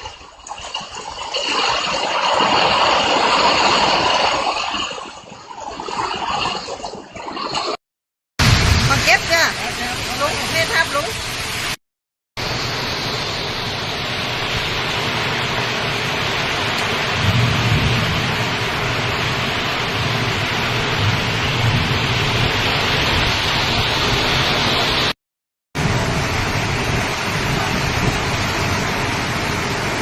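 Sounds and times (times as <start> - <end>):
heavy rain pouring: 8.4 - 11.8, 12.4 - 25.2, 25.8 - 30.0.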